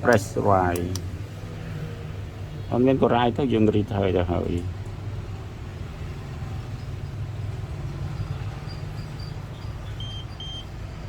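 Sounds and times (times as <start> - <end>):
short high-pitched beeps: 8.2 - 10.7.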